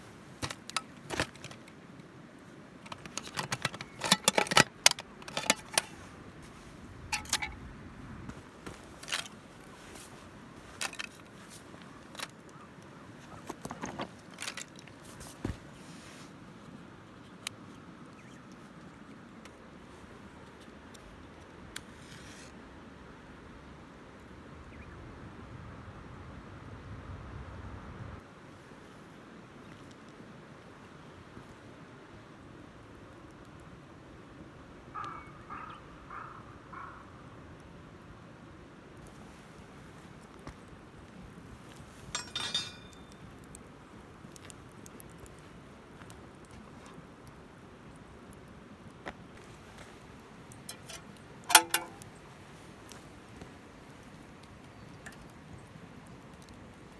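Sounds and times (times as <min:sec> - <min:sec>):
campfire crackling: 0:00.0 - 0:22.2, 0:38.9 - 0:56.9
metal mess tin clinking: 0:02.9 - 0:06.0, 0:07.1 - 0:07.6, 0:42.1 - 0:43.2, 0:50.6 - 0:52.2
fire pops: 0:39.0 - 0:56.9.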